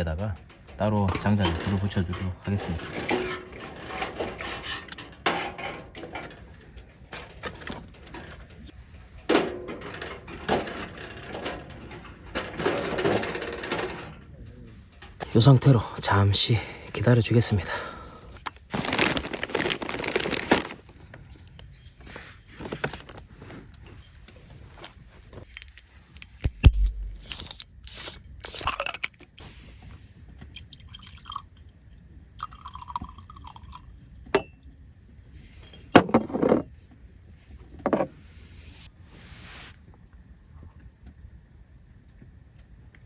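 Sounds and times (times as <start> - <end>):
firewood crackling in a stove: 0.0 - 28.3, 38.6 - 43.0.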